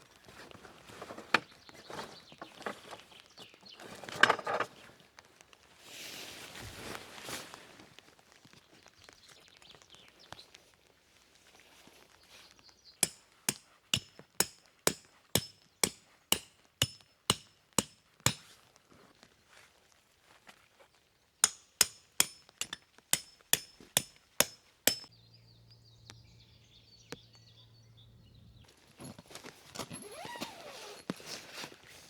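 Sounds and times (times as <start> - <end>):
hammer striking metal: 13.0 - 18.4, 21.4 - 25.1.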